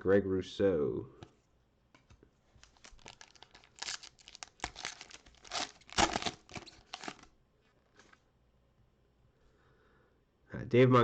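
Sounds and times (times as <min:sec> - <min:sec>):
wrapper tearing and crinkling: 0:02.6 - 0:07.3.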